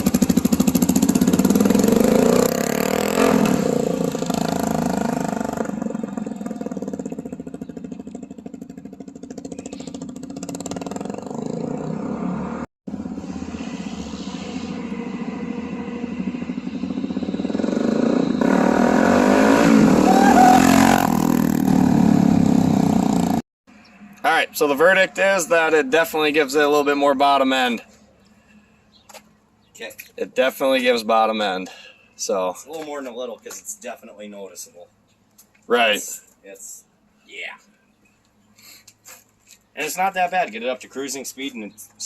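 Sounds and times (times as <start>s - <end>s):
motorcycle engine passing: 0.0s - 23.4s.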